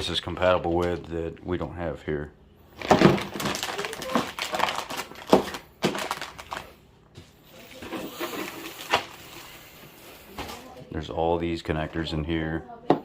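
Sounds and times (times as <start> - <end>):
rummaging in kit box: 7.6 - 9.2.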